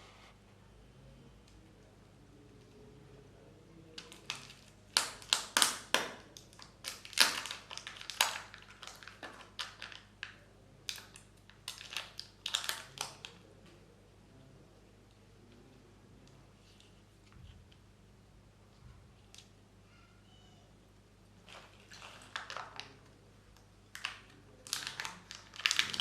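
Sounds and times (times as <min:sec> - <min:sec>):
plastic wrapper crackling: 0:04.0 - 0:13.4, 0:21.4 - 0:23.0, 0:23.9 - 0:26.0.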